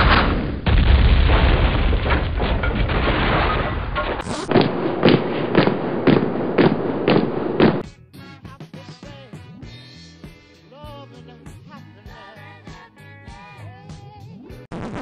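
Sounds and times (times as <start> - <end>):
heavy booms: 0.0 - 7.9.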